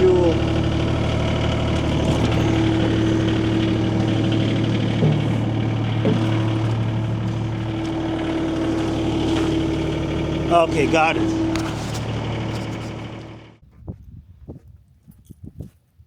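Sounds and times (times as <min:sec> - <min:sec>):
skid steer engine idling: 0:00.0 - 0:13.6.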